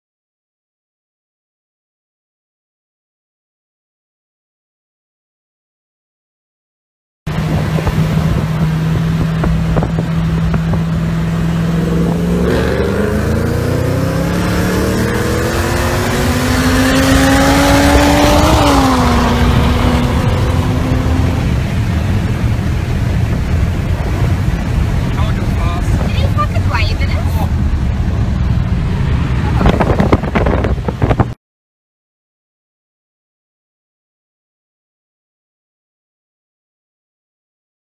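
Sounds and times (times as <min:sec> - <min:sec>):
car engine accelerating: 0:07.3 - 0:31.4
wind and road noise: 0:07.3 - 0:31.4.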